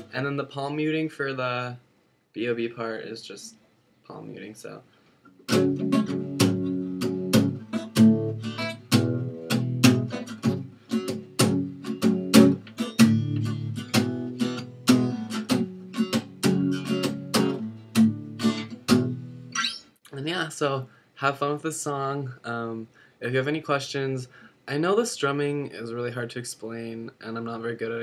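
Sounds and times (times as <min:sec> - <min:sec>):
acoustic guitar strummed palm-muted: 0:05.3 - 0:19.5.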